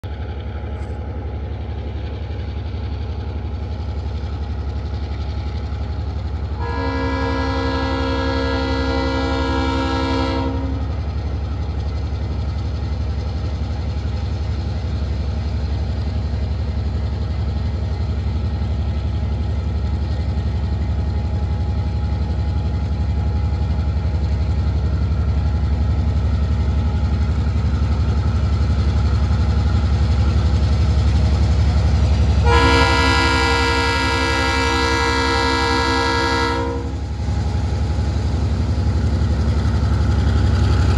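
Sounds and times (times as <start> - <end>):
diesel locomotive engine rumble: 0.0 - 40.9
train horn blast: 6.6 - 11.0, 32.4 - 37.0.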